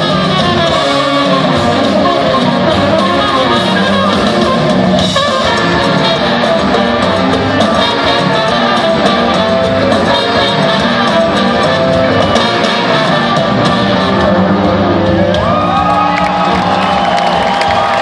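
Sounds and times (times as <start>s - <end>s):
rock band jamming: 0.0s - 18.0s.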